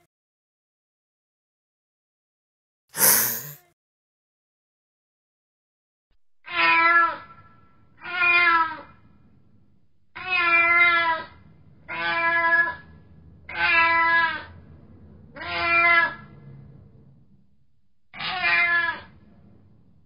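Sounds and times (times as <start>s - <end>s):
cat meowing: 6.5s - 7.4s, 8.0s - 8.9s, 10.2s - 11.3s, 13.5s - 14.4s, 15.4s - 16.2s, 18.2s - 19.1s.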